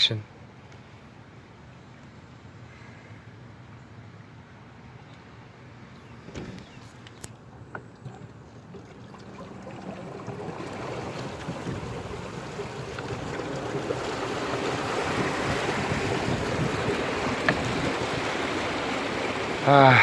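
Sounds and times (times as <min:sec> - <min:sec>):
floodwater rushing: 0:07.9 - 0:20.0.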